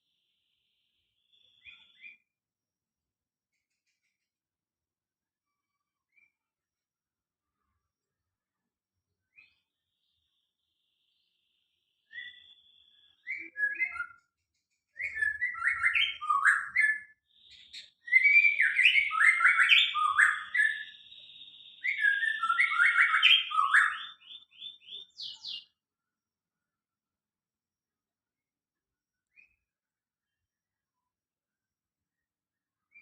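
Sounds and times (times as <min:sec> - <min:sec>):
songbird singing: 0:00.0 - 0:02.4, 0:09.2 - 0:25.9
high steady bird trill: 0:15.0 - 0:25.8.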